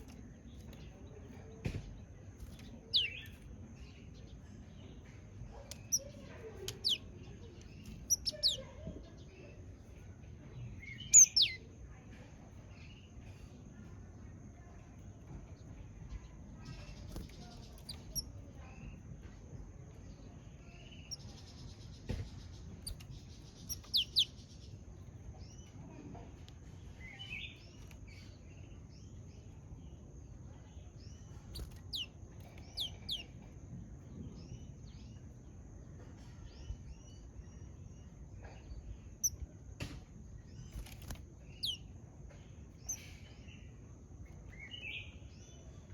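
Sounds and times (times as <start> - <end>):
bird chirping: 0.0 - 9.6, 10.6 - 11.7, 16.1 - 19.0, 20.2 - 25.7, 30.6 - 33.6, 40.4 - 43.7.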